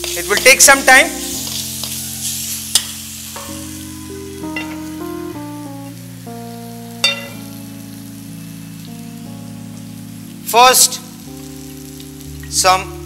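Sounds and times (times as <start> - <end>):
food sizzling in a pan: 0.0 - 13.0
soft background music: 0.0 - 13.0
metal pan clanking: 1.4 - 2.0, 2.7 - 3.9, 4.5 - 5.0, 7.0 - 7.5.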